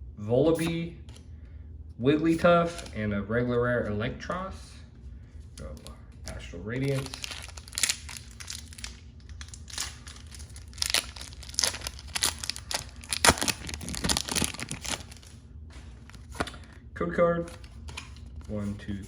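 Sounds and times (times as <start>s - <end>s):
foil wrapper tearing and crinkling: 6.3s - 15.4s, 16.0s - 16.8s.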